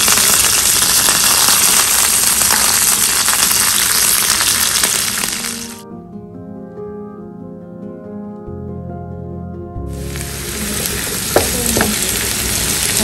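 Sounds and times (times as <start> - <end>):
food sizzling in hot oil: 0.0 - 5.8, 9.9 - 13.0
music: 4.3 - 13.0.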